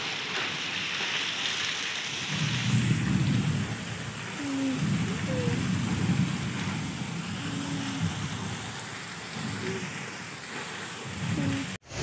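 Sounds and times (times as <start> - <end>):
rain hissing: 0.0 - 12.0
low rumbling: 2.7 - 9.9.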